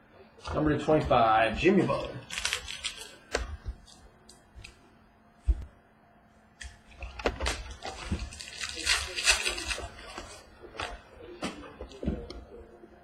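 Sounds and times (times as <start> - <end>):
cards and wrapper rustling: 1.9 - 3.2, 7.0 - 10.4.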